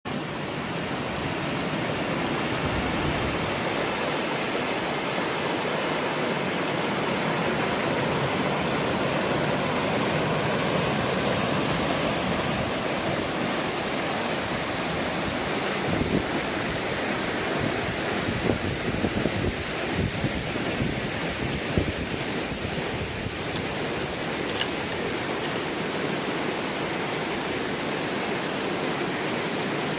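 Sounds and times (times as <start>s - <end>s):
flowing water: 0.1s - 29.9s
wind buffeting microphone: 14.5s - 25.4s.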